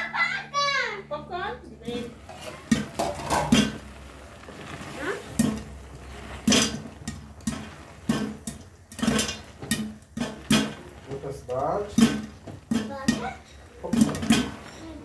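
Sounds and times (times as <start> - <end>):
dishes and utensils clattering: 1.8 - 3.9, 6.4 - 15.0.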